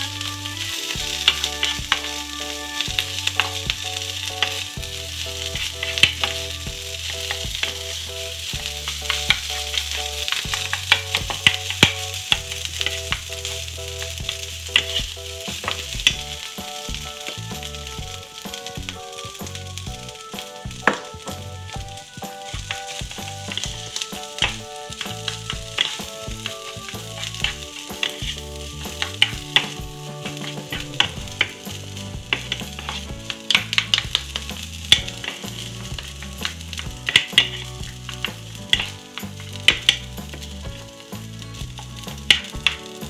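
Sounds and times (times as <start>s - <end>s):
rice sizzling on griddle: 0.0s - 43.0s
spatulas scraping and tapping: 22.3s - 41.0s.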